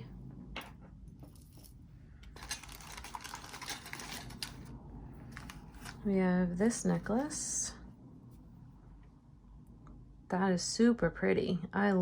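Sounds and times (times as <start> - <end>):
jewelry clicking and rattling: 1.2 - 4.7.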